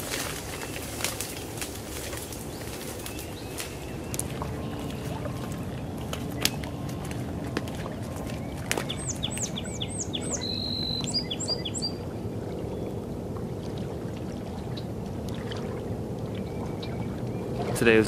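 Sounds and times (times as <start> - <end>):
low outdoor rush: 0.0 - 11.2
small bird calling: 0.0 - 12.0.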